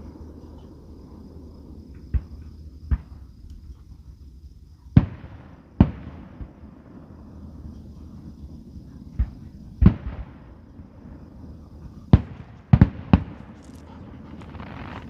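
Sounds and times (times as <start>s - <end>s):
fireworks bangs: 5.0s - 7.6s, 12.1s - 15.0s.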